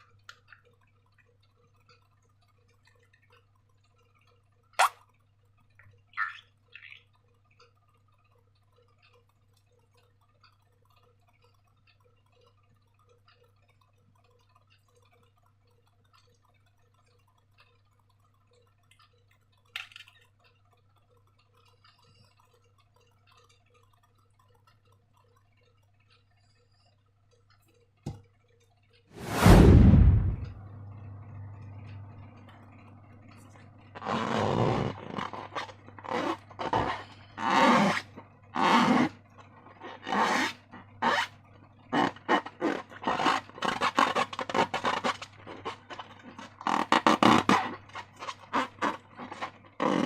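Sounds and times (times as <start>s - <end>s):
loud burst: 29.2s - 30.7s
steady low hum: 29.2s - 37.5s.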